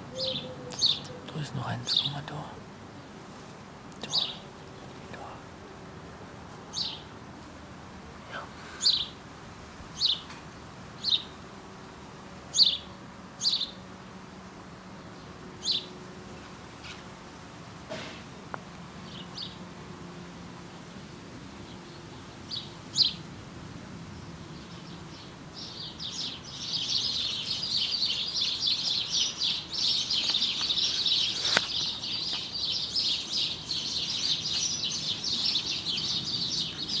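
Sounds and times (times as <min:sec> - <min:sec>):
small birds chirping: 0:00.0 - 0:05.5, 0:06.5 - 0:07.2, 0:08.2 - 0:09.2, 0:09.9 - 0:17.1, 0:19.0 - 0:19.8, 0:21.5 - 0:23.3, 0:24.0 - 0:37.0.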